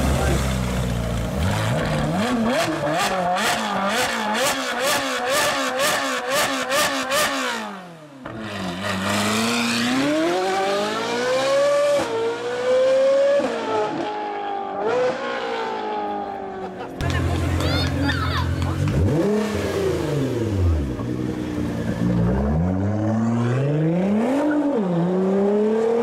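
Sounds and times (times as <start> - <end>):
car engine revving: 0.0 - 16.4, 18.5 - 26.0
car accelerating hard: 8.3 - 16.5.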